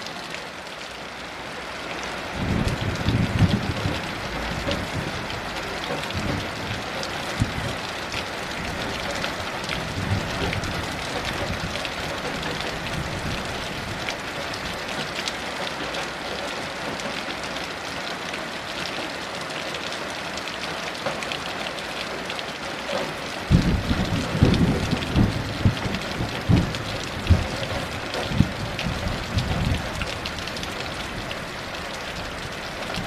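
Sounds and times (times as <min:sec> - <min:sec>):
heavy rain: 0:00.0 - 0:33.0
raindrops ticking on surfaces: 0:00.0 - 0:33.0
thunder rumbling and cracking: 0:02.4 - 0:07.9, 0:08.6 - 0:14.8, 0:23.5 - 0:31.5.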